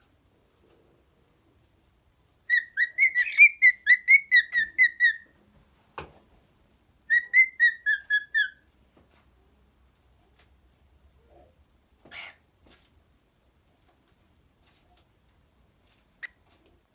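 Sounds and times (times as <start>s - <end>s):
cockatiel whistling: 2.5s - 5.2s, 7.1s - 8.6s.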